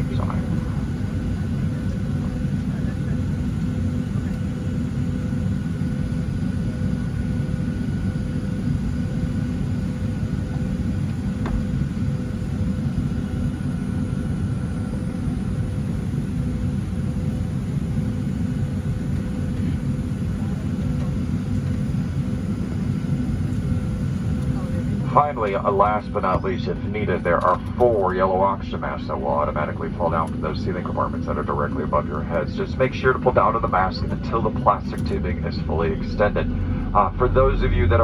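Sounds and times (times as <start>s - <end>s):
aircraft cabin rumble: 0.0s - 38.0s
faint steady hum: 24.0s - 38.0s.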